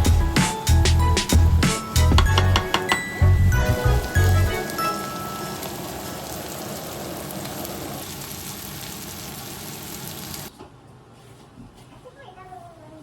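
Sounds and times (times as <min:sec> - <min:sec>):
food sizzling in a pan: 0:00.5 - 0:10.5.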